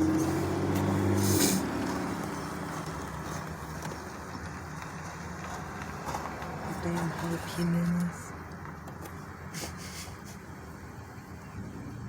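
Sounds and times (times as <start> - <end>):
rumble of traffic: 0.0 - 12.0
vehicle engine humming: 0.0 - 12.0
short hiss: 1.2 - 1.7.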